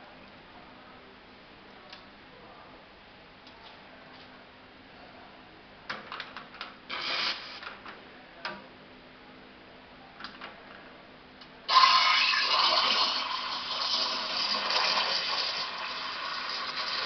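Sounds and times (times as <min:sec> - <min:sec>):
coffee machine running: 0:11.7 - 0:17.0.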